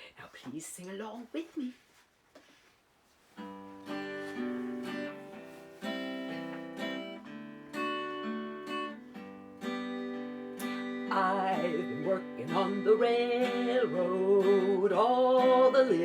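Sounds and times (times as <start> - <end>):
acoustic guitar strumming chords: 3.4 - 16.0.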